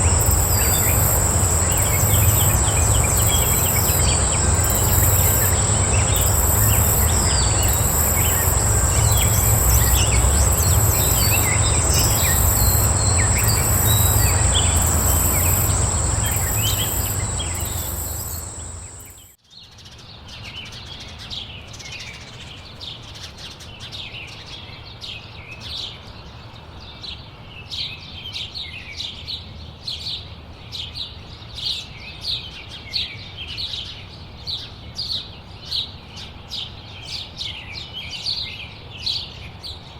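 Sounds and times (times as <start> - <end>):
low rumble: 0.0 - 19.1
pulsing hiss: 0.0 - 19.2
songbirds chirping: 0.0 - 19.2
high-pitched insect drone: 0.0 - 19.3.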